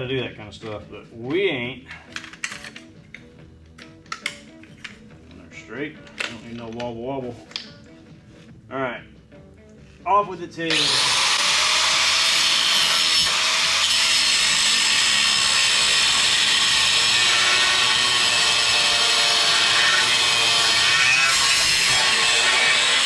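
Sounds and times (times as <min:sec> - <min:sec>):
power tool cutting steel: 0:10.7 - 0:23.0.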